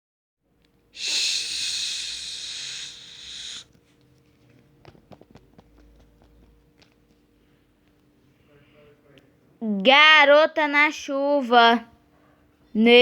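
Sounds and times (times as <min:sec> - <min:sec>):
loud hiss: 0:01.0 - 0:03.7
faint clicks and taps: 0:03.7 - 0:08.1.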